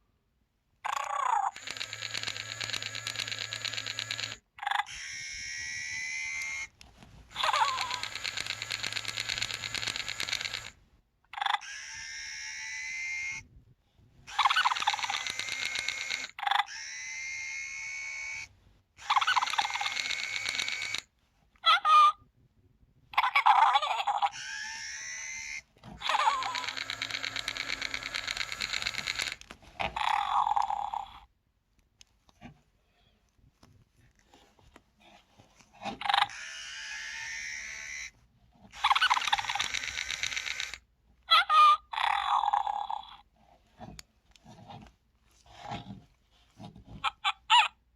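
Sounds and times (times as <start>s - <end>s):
toy rapid pulsing chatter: 0.9s - 10.8s, 11.4s - 13.4s, 14.3s - 21.1s, 23.2s - 31.2s, 36.0s - 43.2s
toy squeak: 4.2s - 10.7s, 11.4s - 13.4s, 14.3s - 21.0s, 21.6s - 22.2s, 23.2s - 31.3s, 36.0s - 38.2s, 38.8s - 43.2s, 47.0s - 47.8s.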